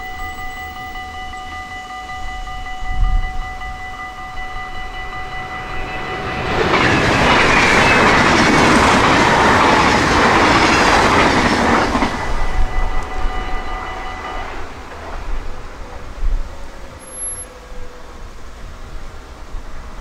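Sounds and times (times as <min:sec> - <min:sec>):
level crossing bell ringing: 0:00.0 - 0:07.4, 0:12.3 - 0:14.8
train passing at speed: 0:00.0 - 0:20.0.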